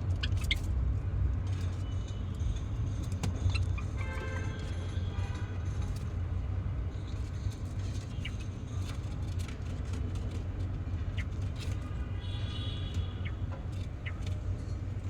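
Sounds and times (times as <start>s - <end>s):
sparrows chirping: 7.3s - 9.4s, 10.8s - 15.0s.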